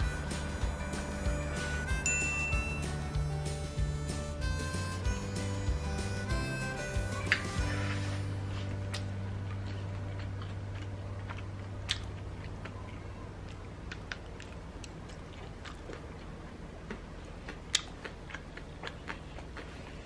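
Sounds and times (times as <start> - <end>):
person chewing crunchy food: 8.5 - 20.0.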